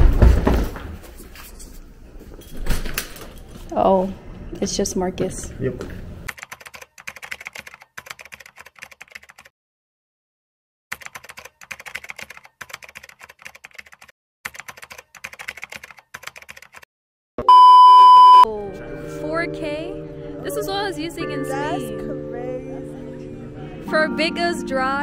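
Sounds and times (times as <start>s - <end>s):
keyboard typing clicks: 6.3s - 9.5s, 10.9s - 16.8s
loud electronic beep: 17.4s - 18.5s.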